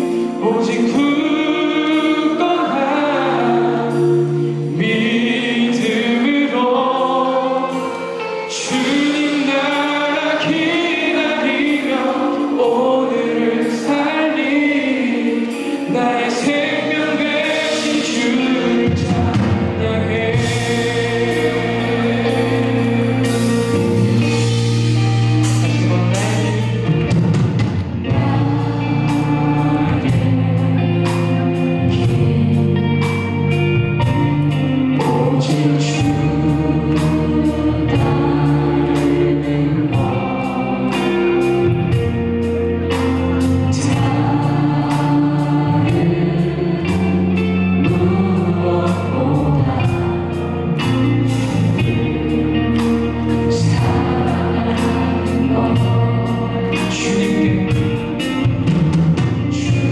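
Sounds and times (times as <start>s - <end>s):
bass: 0.0s - 59.9s
electric guitar sustained chords: 0.0s - 59.9s
keyboards: 0.0s - 59.9s
person singing: 0.0s - 59.9s.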